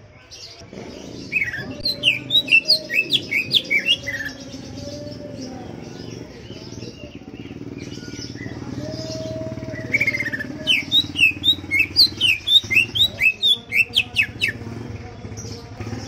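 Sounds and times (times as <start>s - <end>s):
bird whistled chirps: 9.9s - 14.6s.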